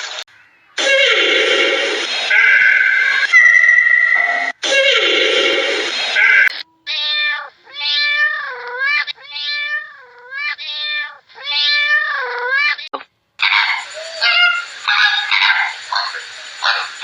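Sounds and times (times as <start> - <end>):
cat meowing: 6.2 - 12.9, 13.5 - 15.4.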